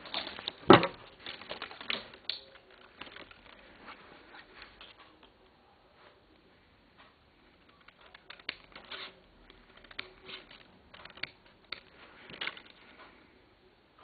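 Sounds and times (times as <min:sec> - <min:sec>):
sharp clicks and snaps: 0:01.2 - 0:03.6, 0:07.6 - 0:13.1.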